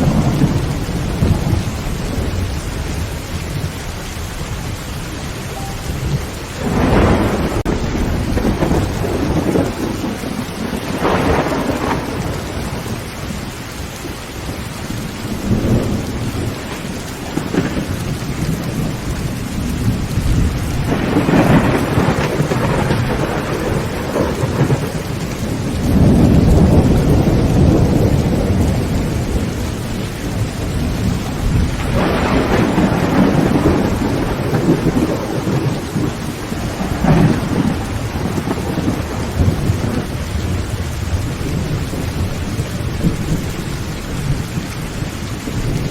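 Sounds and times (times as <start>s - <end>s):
heavy rain on a tin roof: 0.0s - 45.9s
thunder rumbling: 0.0s - 45.9s
sharp thunder crack: 5.6s - 13.0s, 19.8s - 42.3s.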